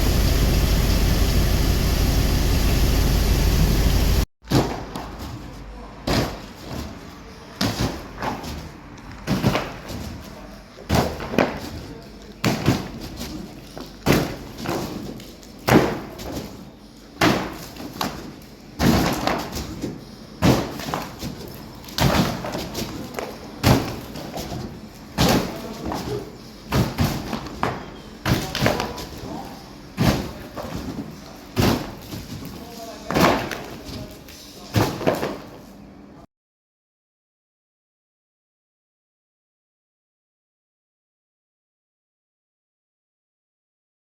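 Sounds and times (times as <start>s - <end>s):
plant machinery running: 0.0s - 4.2s.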